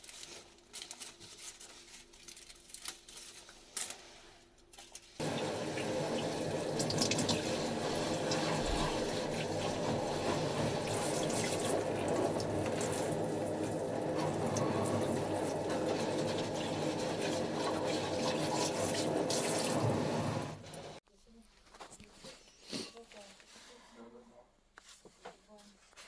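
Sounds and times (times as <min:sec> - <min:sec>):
tap water running into sink: 0:05.2 - 0:21.0.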